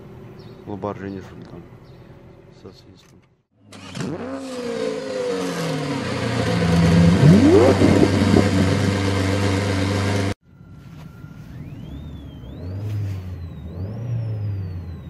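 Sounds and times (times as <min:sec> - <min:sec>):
car engine running: 0:03.8 - 0:10.4
tone rising sharply in pitch: 0:06.3 - 0:15.0
whistle from car speakers: 0:10.5 - 0:15.0.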